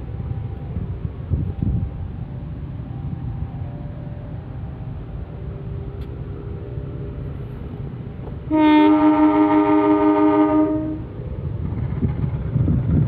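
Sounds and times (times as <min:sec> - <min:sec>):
idling train engines rumble: 0:00.0 - 0:13.0
locomotive air horn: 0:08.5 - 0:11.1.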